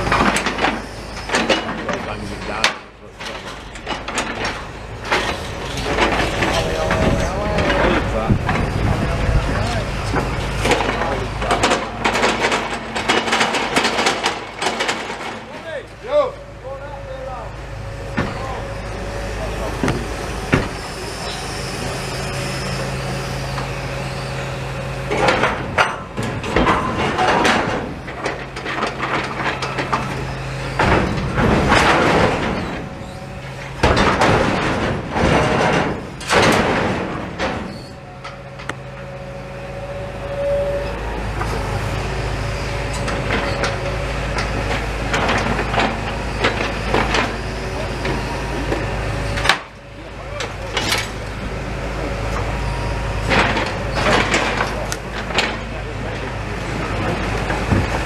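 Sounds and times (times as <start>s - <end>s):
knocks and clattering: 0.0s - 15.6s, 18.1s - 20.9s, 25.1s - 39.2s, 53.2s - 58.0s
heavy engine running: 0.0s - 58.0s.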